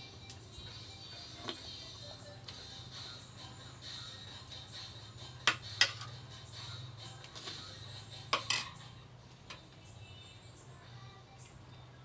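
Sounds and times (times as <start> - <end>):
utensils clinking against dishes: 5.5 - 6.2, 8.3 - 8.9.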